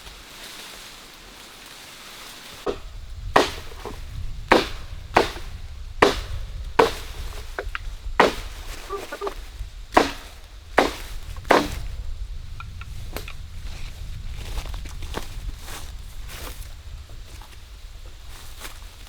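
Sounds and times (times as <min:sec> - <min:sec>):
wood being chopped: 0:02.6 - 0:12.0.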